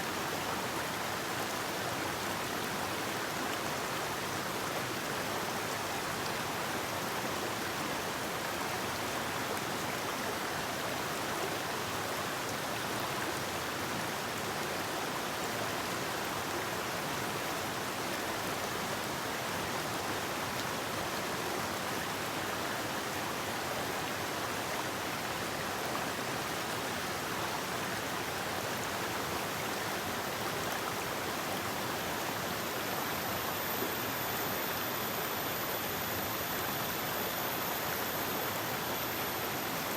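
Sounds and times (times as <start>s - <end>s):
river rushing: 30.0s - 39.9s.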